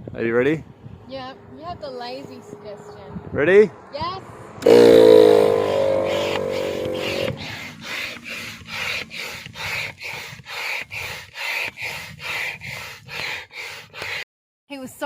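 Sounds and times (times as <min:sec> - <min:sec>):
loud pitched tone: 0:01.1 - 0:08.8
hand air pump strokes: 0:04.6 - 0:14.2.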